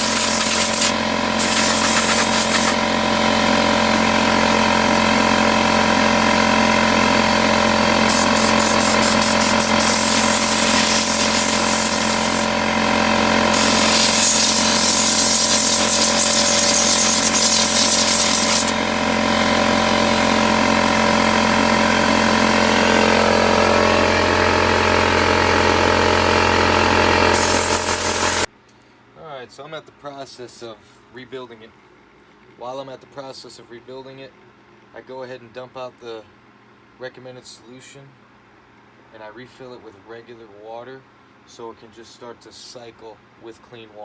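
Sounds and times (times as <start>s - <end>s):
hiss of rushing liquid: 0.0s - 2.8s, 8.1s - 12.5s, 13.5s - 18.8s, 27.3s - 28.5s
pump droning: 0.0s - 28.5s.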